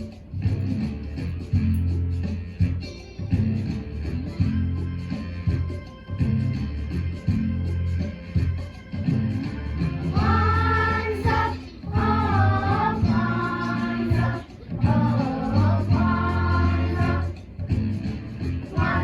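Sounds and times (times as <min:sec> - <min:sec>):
instrumental accompaniment: 0:00.0 - 0:19.0
children singing: 0:10.1 - 0:17.4, 0:18.7 - 0:19.0.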